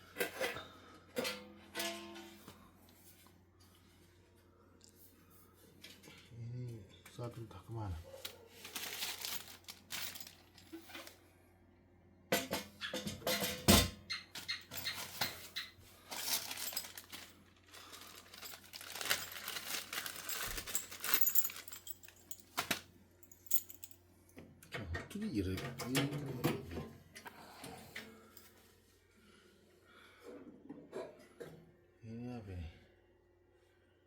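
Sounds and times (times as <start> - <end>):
rustling and crinkling packaging: 8.1 - 11.2, 14.4 - 24.0.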